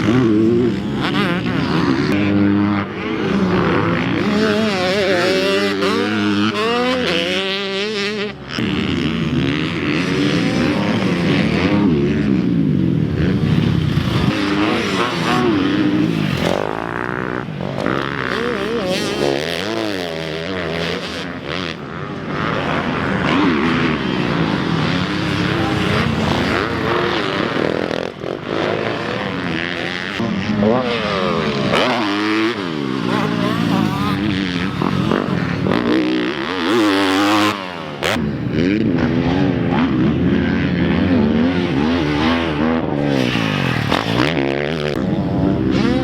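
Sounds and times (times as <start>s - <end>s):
dirt bike engines revving past: 0.0s - 46.0s.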